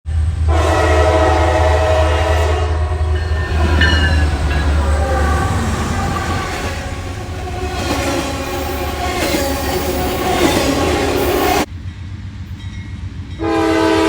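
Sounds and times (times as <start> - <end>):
locomotive air horn: 0.4 - 11.7, 13.4 - 14.0
low engine rumble: 1.7 - 11.8.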